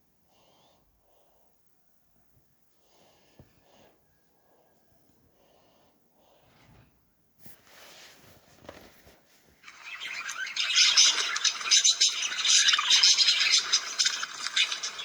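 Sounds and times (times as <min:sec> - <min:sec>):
cockatiel chattering squawks: 0:09.7 - 0:15.0.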